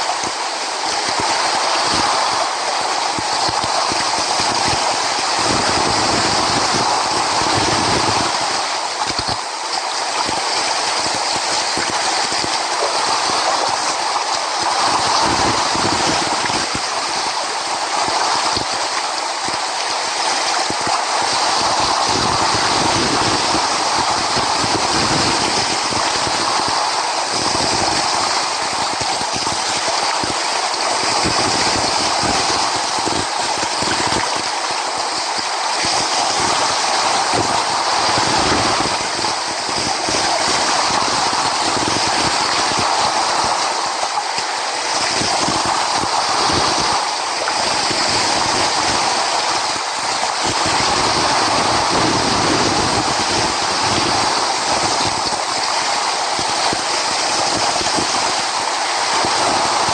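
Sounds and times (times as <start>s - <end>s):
sea waves breaking: 0.0s - 19.0s, 29.8s - 59.9s.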